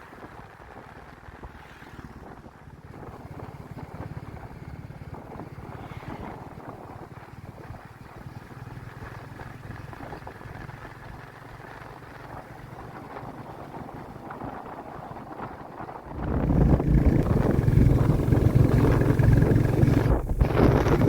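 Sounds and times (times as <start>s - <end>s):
motorcycle exhaust thumping: 16.1s - 21.0s.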